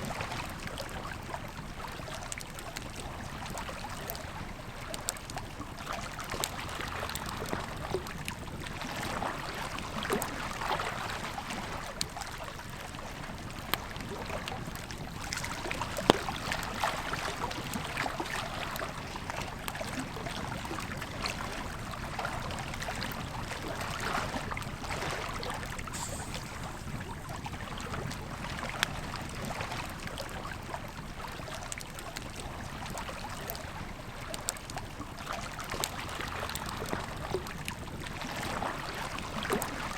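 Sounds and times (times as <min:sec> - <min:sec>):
river flowing: 0:14.7 - 0:28.8.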